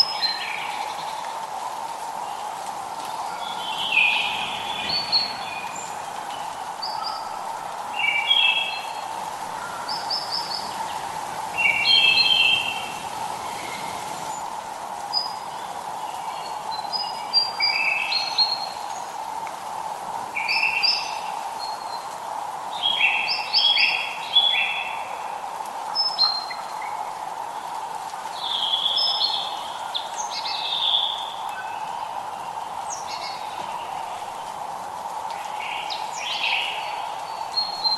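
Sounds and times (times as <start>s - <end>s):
background hiss: 0.0s - 37.9s
songbirds chirping: 0.0s - 37.9s.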